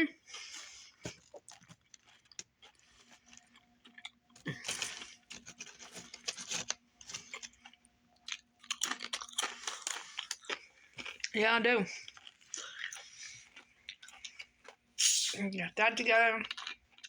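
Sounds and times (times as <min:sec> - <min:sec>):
person chewing sandwich: 0:00.2 - 0:11.4, 0:12.0 - 0:15.0, 0:16.5 - 0:17.0.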